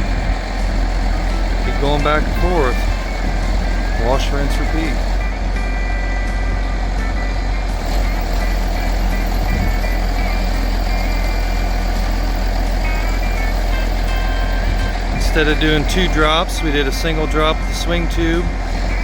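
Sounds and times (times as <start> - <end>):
heavy truck engine rumbling: 0.0 - 19.0.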